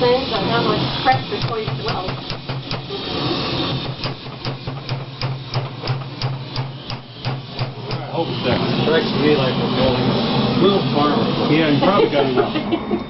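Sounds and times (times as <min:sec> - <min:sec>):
steady low hum: 0:00.0 - 0:13.0
hammer blows on metal: 0:01.1 - 0:03.0, 0:03.7 - 0:08.7.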